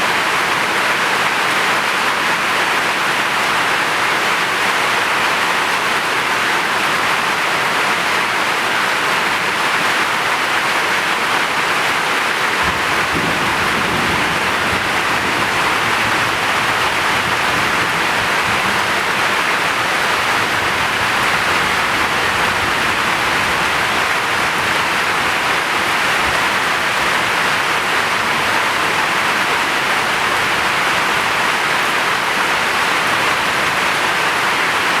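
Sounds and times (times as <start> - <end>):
heavy rain hissing: 10.3 - 35.0.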